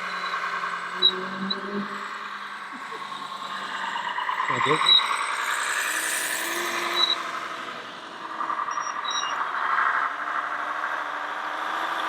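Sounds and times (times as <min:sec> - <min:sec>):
whirring of small electric motors: 0:00.0 - 0:09.0.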